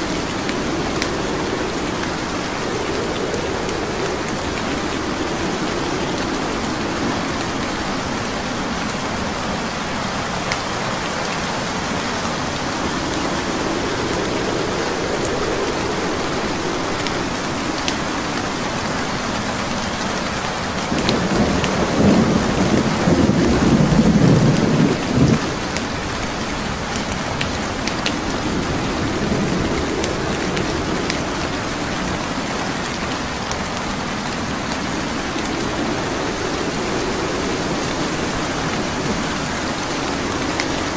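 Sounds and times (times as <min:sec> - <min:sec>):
rolling thunder rumble: 0:00.0 - 0:40.9
steady rain: 0:00.0 - 0:40.9.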